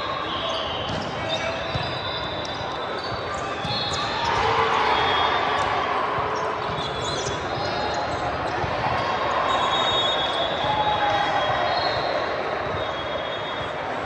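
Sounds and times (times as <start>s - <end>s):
hubbub of voices: 0.0s - 14.0s.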